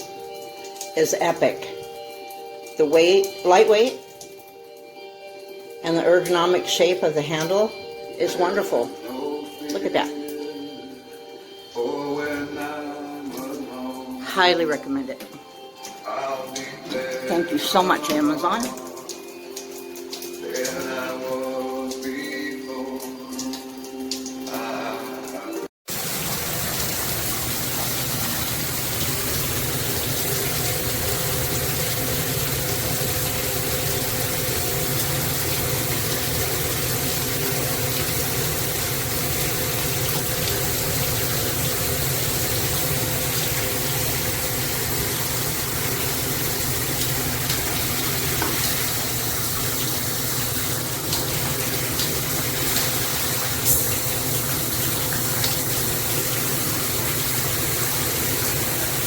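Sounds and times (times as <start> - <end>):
shower head spraying water: 16.0 - 59.0.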